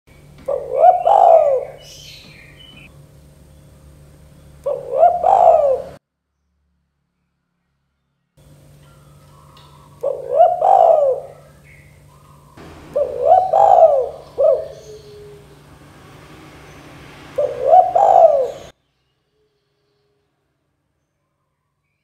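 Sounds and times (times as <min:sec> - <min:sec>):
dove cooing: 0:00.3 - 0:02.9, 0:04.6 - 0:06.0, 0:08.9 - 0:16.3, 0:16.9 - 0:18.7
faint steady hum: 0:08.4 - 0:21.7.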